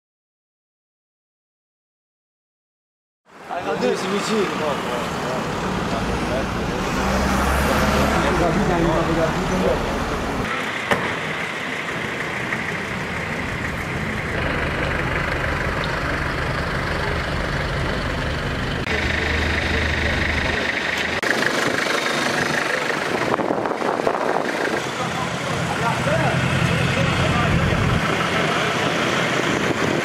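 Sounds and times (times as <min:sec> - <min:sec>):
engines idling at low revs: 0:08.2 - 0:30.0.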